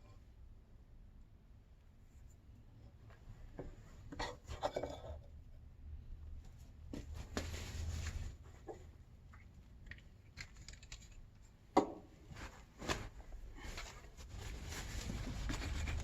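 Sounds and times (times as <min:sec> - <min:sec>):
computer parts clicking and tapping: 0:09.9 - 0:11.2.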